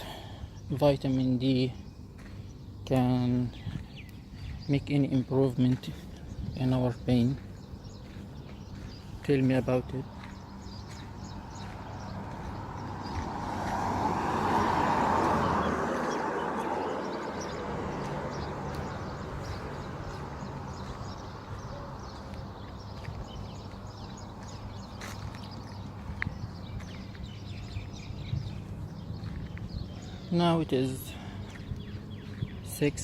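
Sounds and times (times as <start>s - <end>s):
outdoor ambience: 0.0s - 33.0s
car passing by: 11.7s - 21.6s.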